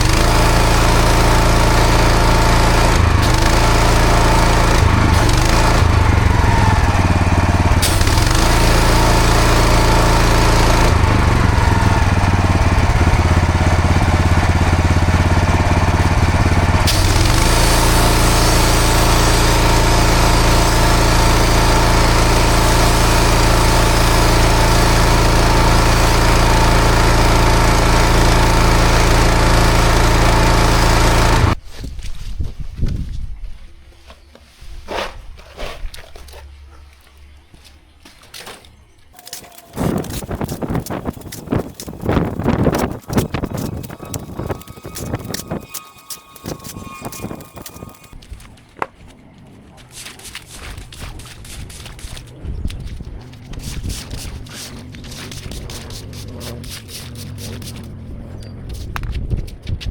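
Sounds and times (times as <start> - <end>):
pressure washer engine humming: 0.0 - 31.6, 39.2 - 48.2
water jet hissing: 7.8 - 10.4, 16.9 - 29.2.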